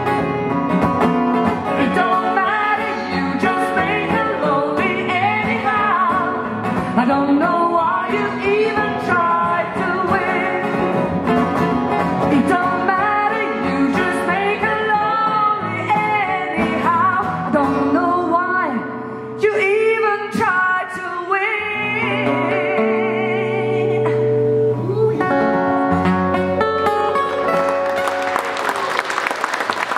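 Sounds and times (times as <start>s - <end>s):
live folk blues band: 0.0s - 28.7s
audience applause: 27.4s - 29.9s.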